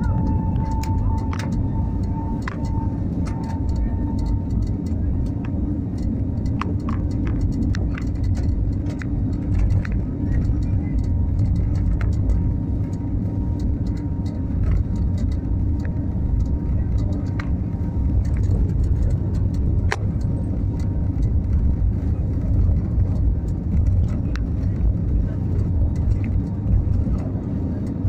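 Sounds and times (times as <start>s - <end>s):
airplane engines rumbling: 0.0s - 28.0s
faint clicks and rattles: 0.0s - 28.0s.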